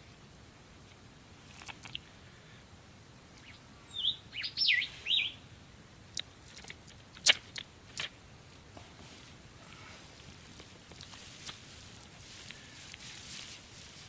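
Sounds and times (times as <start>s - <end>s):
bird whistling: 3.4s - 5.4s.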